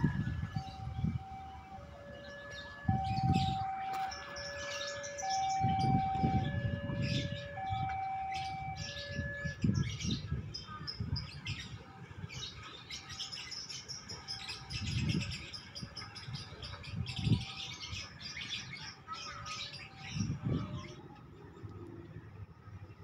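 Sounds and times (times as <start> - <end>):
level-crossing warning tone: 0.0 - 9.9
small birds chirping: 0.6 - 22.0.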